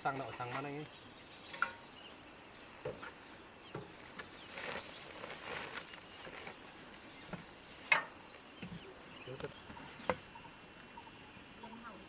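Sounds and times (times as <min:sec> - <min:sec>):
insects buzzing faintly: 0:00.0 - 0:12.0
rustles and light taps: 0:02.8 - 0:10.3.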